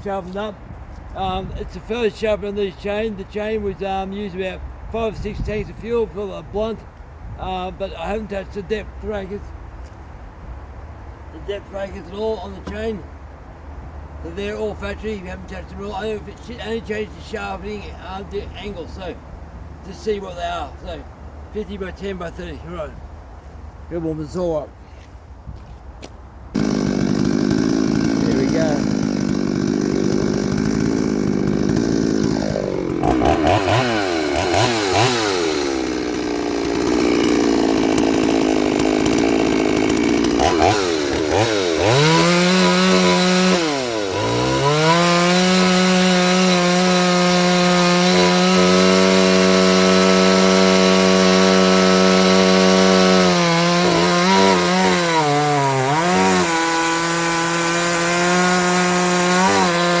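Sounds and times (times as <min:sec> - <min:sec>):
chainsaw cutting log: 0:26.6 - 1:00.0.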